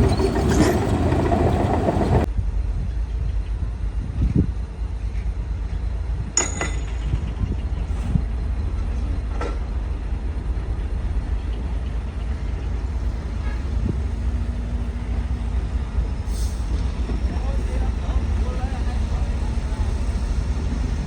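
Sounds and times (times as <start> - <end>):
heavy diesel machinery rumbling: 0.0 - 2.3, 7.0 - 21.0.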